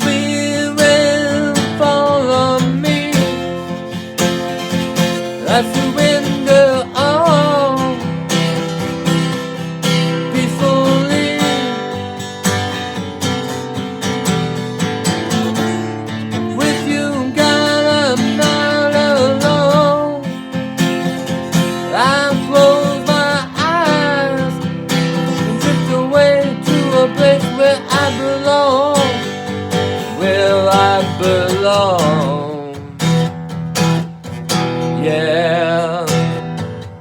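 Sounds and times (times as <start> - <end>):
acoustic guitar strumming: 0.0 - 37.0.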